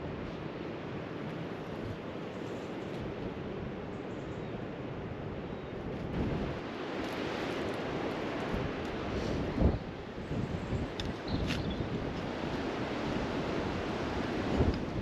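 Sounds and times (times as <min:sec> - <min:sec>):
wind on microphone: 0:05.8 - 0:15.0.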